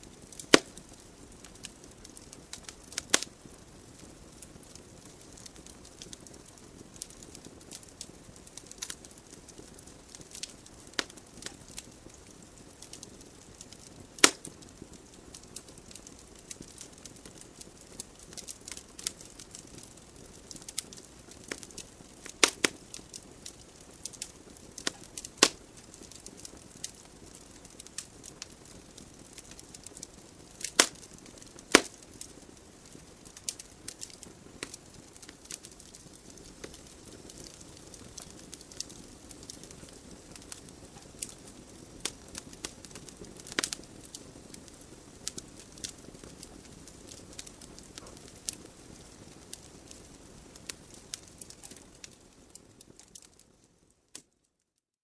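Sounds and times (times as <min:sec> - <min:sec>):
burning logs popping: 0:00.0 - 0:54.3
fire hissing and crackling: 0:00.0 - 0:54.4.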